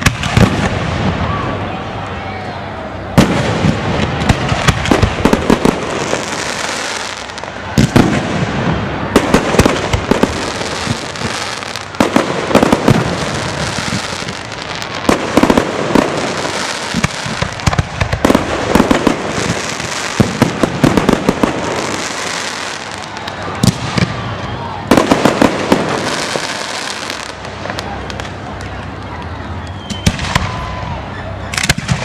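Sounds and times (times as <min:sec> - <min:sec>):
fireworks bangs: 0:00.0 - 0:02.0, 0:02.9 - 0:32.0
crackle and hiss of bursting shells: 0:09.2 - 0:24.2.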